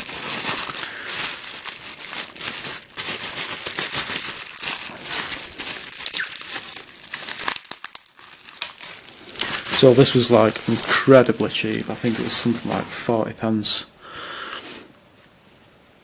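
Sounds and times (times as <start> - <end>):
packaging crinkling and tearing: 0.0 - 13.2.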